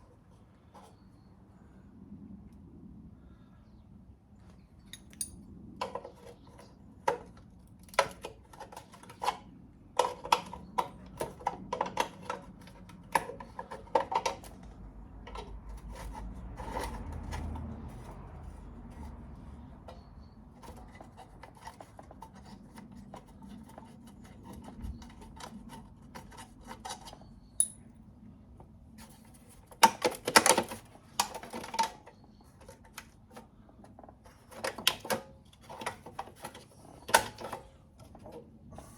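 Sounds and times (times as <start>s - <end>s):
metal tools clinking on bolts: 4.9s - 5.4s, 27.6s - 27.8s.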